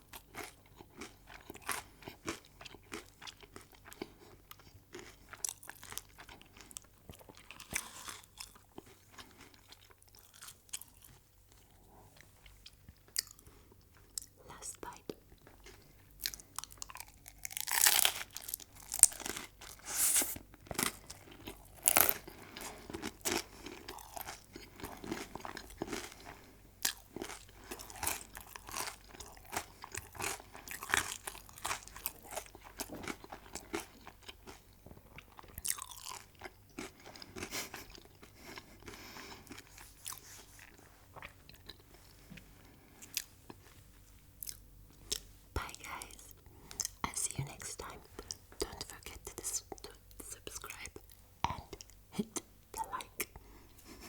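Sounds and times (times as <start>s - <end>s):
chewing crunchy food: 0.0s - 54.0s
crisp crunching bites: 16.8s - 19.4s, 20.8s - 22.3s.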